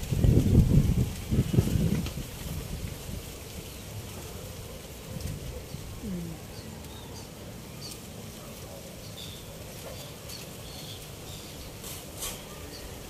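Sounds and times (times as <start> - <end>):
brief rustles: 11.8 - 12.8.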